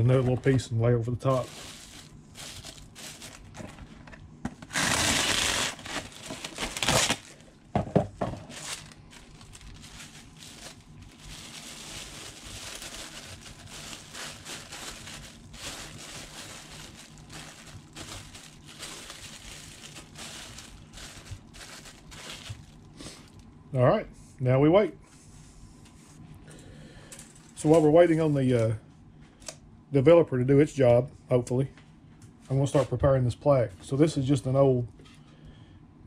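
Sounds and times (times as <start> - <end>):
plastic wrap crackles: 1.2 - 3.9, 4.6 - 7.6, 8.2 - 23.4
plastic wrap crinkling: 1.2 - 7.6, 8.2 - 23.5
plastic wrap rustling: 1.2 - 23.4.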